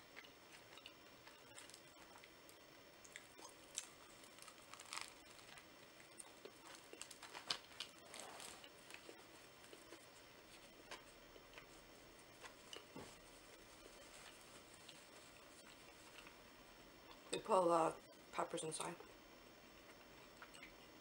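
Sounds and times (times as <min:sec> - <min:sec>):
person chewing with crackles: 0:00.0 - 0:21.0
biting into crusty bread: 0:03.0 - 0:10.0
paper napkin rustling: 0:03.7 - 0:05.6, 0:06.5 - 0:16.3.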